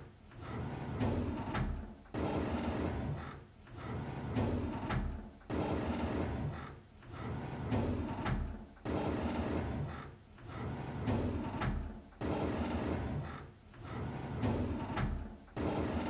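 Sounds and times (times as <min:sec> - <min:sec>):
drawer sliding open: 0:13.8 - 0:16.0.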